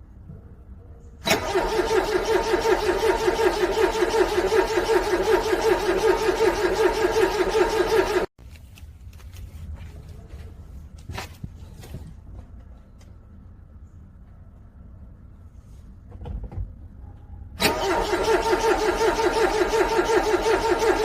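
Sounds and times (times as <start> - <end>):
car engine cranking: 1.2 - 8.3, 17.6 - 21.0.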